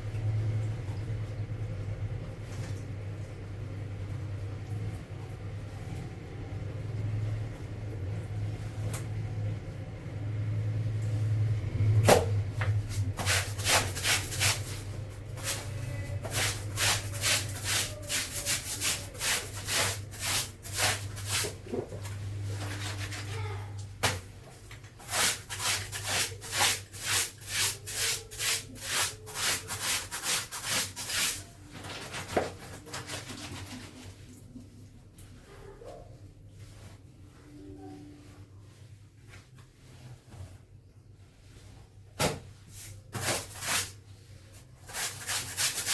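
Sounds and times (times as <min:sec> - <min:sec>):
clothes scrubbed by hand: 0:12.0 - 0:23.6, 0:24.2 - 0:45.9.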